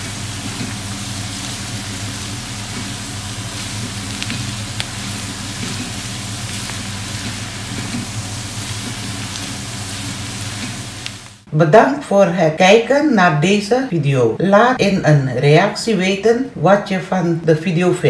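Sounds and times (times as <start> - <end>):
food sizzling in a wok: 0.0 - 11.5.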